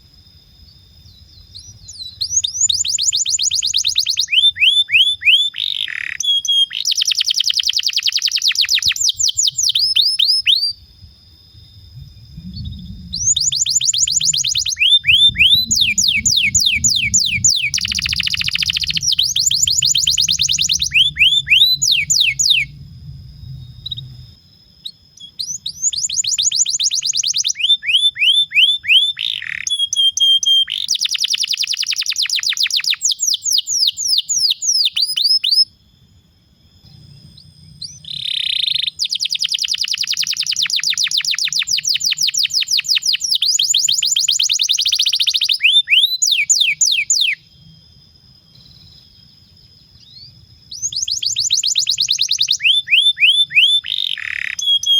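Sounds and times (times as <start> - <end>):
canary singing rolling trills: 1.1 - 10.8, 12.0 - 35.6, 50.0 - 54.9.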